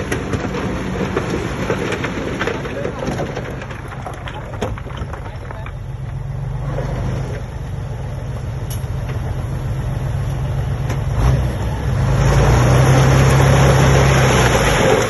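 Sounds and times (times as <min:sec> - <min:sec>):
clunk: 0:00.0 - 0:07.5, 0:08.7 - 0:09.4.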